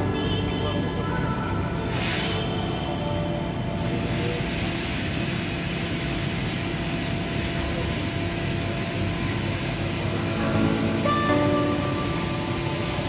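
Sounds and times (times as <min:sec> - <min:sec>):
machine hum: 0:05.4 - 0:13.0.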